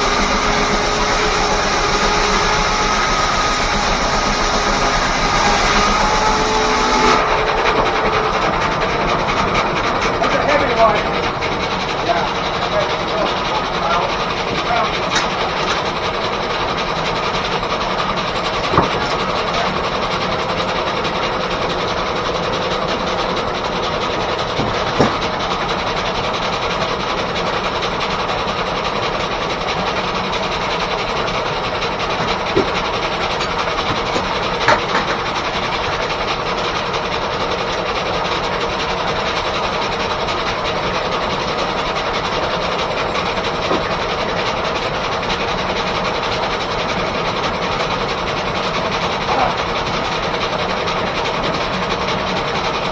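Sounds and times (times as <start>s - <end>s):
sawmill mechanical clatter: 0.0s - 52.9s
sharp knocks: 18.6s - 19.8s.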